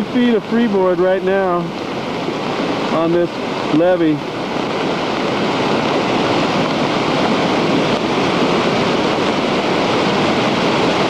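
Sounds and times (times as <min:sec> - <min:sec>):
river rushing in flood: 0:00.0 - 0:11.0.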